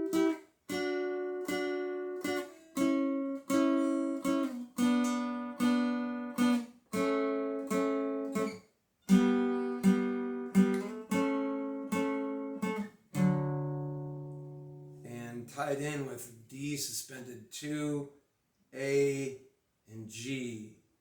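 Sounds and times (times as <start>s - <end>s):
acoustic guitar plucked slowly: 0.0s - 15.1s.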